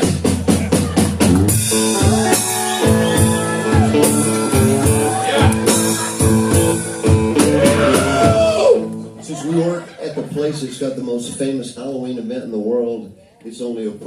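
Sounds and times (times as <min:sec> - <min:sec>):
drum hits: 0:00.0 - 0:08.8
guitar chords ringing: 0:01.4 - 0:09.2.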